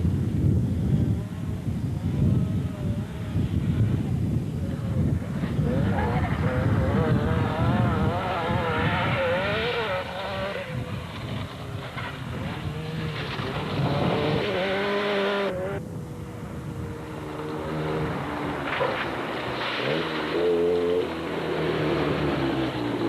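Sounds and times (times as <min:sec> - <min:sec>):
rally car engine revving: 0:04.7 - 0:23.0.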